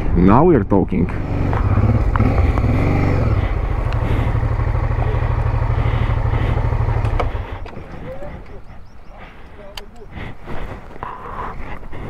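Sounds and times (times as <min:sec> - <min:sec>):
wind and road noise: 0:00.0 - 0:12.0
motorcycle engine running: 0:01.1 - 0:11.2.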